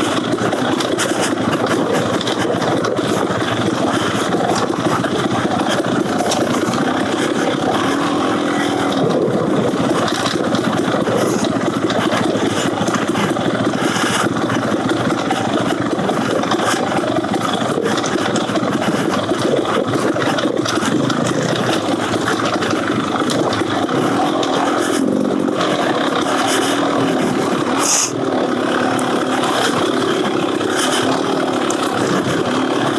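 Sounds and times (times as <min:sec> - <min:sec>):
two-stroke dirt bike engine: 0:00.0 - 0:32.9.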